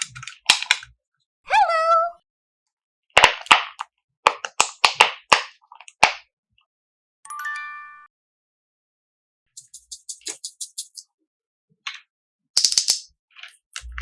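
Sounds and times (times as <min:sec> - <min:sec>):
bright stacked-tone chime: 0:07.3 - 0:08.1.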